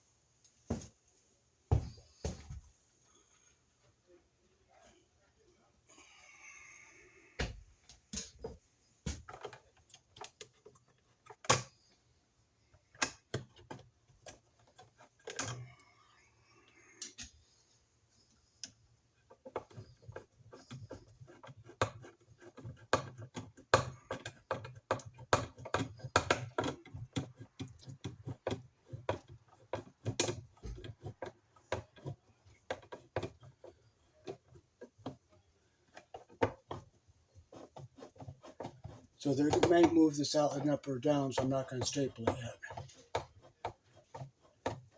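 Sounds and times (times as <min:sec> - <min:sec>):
clicks and taps of hand work: 0:07.4 - 0:11.8, 0:12.9 - 0:15.7, 0:18.6 - 0:44.9.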